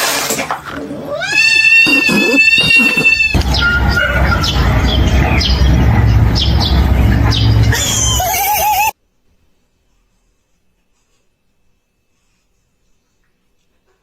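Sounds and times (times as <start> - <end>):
cat yowling: 1.1 - 4.2
short high falling squeaks: 1.3 - 4.6
low rumble: 3.2 - 8.3.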